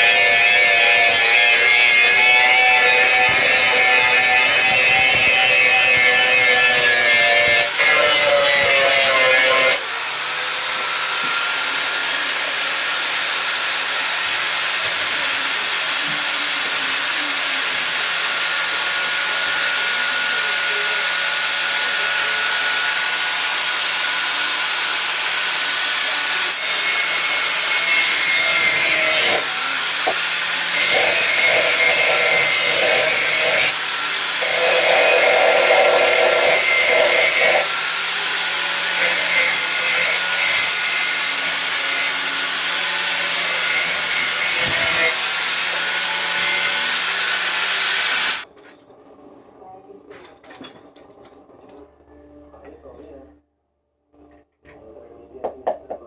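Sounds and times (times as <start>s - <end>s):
blade grinding hiss: 0.0s - 9.9s, 25.2s - 48.4s.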